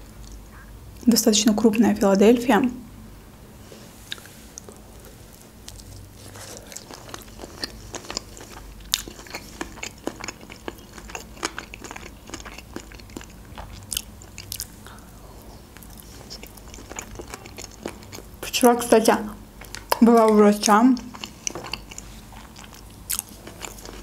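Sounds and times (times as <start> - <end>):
chewing with mouth clicks: 4.1 - 18.8, 19.6 - 24.0.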